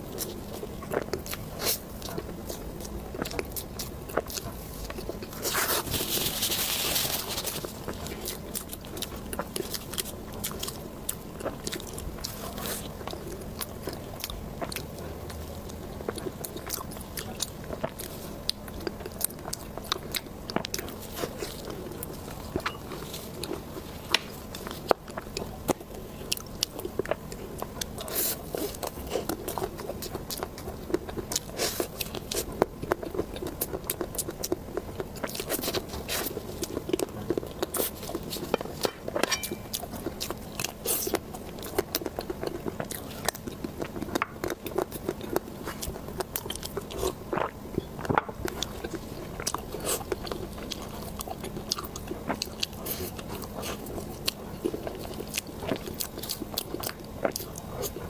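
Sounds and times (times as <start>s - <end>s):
soft mouth chewing: 0.0s - 58.0s.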